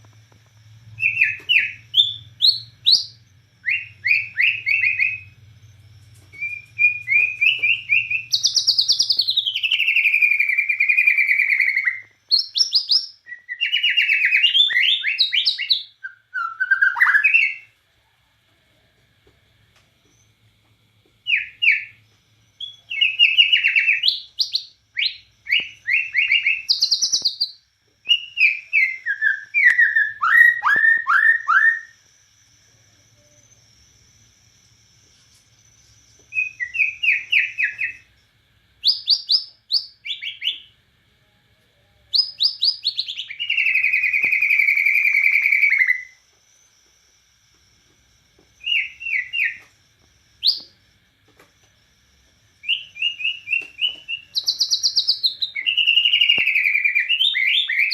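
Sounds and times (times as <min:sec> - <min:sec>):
bird singing whistled notes: 0:00.9 - 0:17.7, 0:21.2 - 0:38.1, 0:38.8 - 0:40.7, 0:42.1 - 0:46.8, 0:48.6 - 0:49.7, 0:50.4 - 0:50.8, 0:52.6 - 0:57.9
bird trill: 0:01.0 - 0:17.8, 0:21.2 - 0:22.0, 0:22.6 - 0:32.0, 0:35.8 - 0:38.1, 0:42.2 - 0:46.2, 0:48.6 - 0:49.7, 0:52.6 - 0:57.9.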